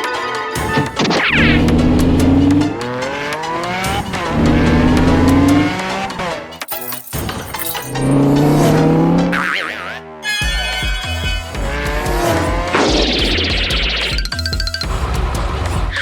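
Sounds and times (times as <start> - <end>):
squeals and clicks: 0.6 - 1.8, 12.8 - 14.9
cartoon engine revving: 0.6 - 6.3, 8.1 - 10.2, 11.7 - 14.9.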